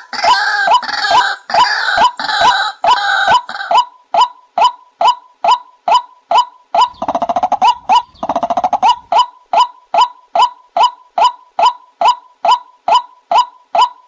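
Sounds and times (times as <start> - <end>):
bird chattering rattles: 6.8 - 9.2
bird calling short sharp notes: 6.8 - 9.3.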